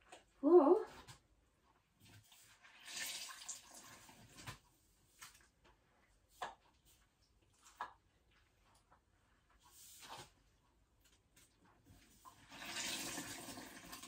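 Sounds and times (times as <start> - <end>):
water splashing onto floor: 2.3 - 4.6.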